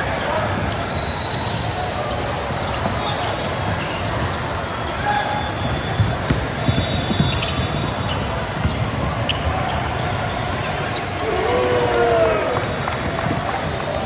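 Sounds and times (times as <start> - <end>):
sneaker squeaks: 0.1 - 11.2
background din of voices: 7.7 - 14.0.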